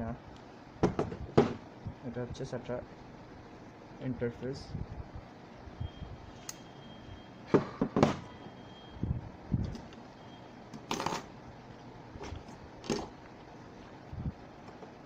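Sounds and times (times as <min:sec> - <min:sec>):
hard drive handling knocks: 0:00.8 - 0:01.6.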